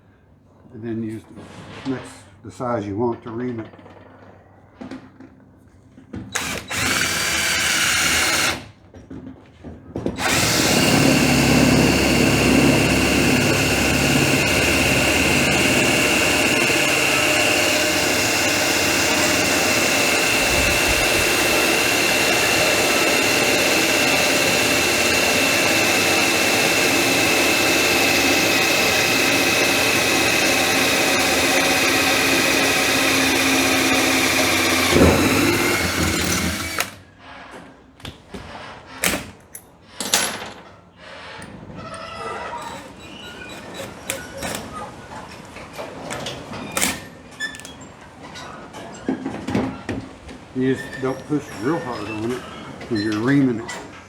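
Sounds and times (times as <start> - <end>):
electric drill whining: 6.3 - 8.7, 10.2 - 37.1.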